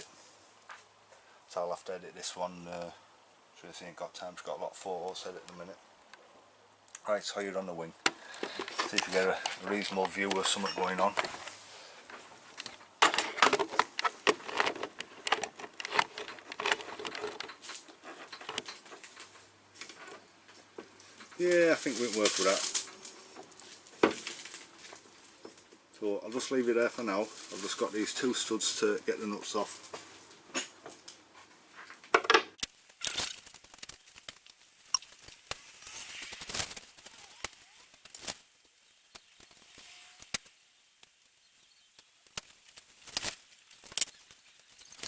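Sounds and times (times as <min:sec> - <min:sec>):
hard objects clattering: 0:32.6 - 0:45.0
tools and steel parts clinking: 0:32.6 - 0:45.0.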